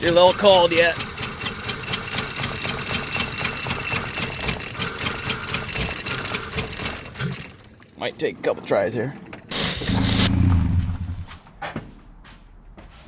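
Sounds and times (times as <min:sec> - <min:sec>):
engine cranking and rattling: 0:00.0 - 0:07.8.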